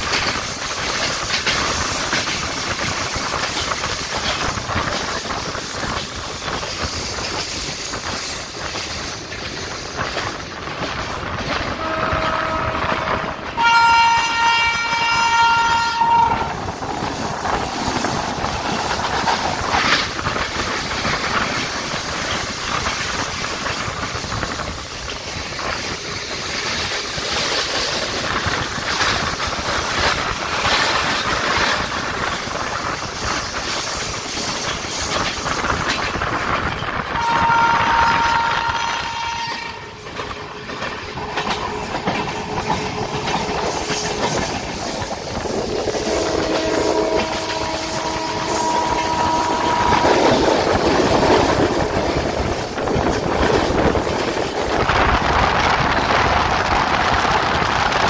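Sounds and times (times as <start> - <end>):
train wheels on rails: 0.0 - 58.0
low train horn note: 11.8 - 16.6, 37.1 - 40.0, 46.0 - 51.8
loud locomotive horn blast: 11.8 - 16.7, 37.1 - 40.0, 46.0 - 51.9.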